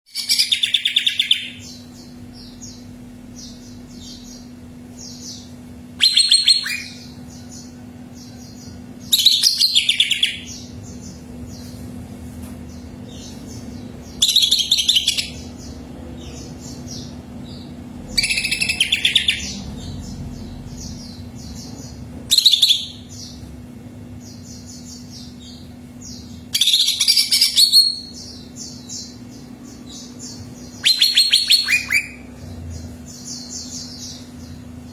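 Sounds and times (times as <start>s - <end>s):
bird singing high phrases: 0.1s - 11.7s, 12.7s - 23.5s, 24.2s - 34.9s
steady low hum: 0.1s - 34.9s
faint chirping: 12.7s - 23.5s, 24.2s - 34.9s.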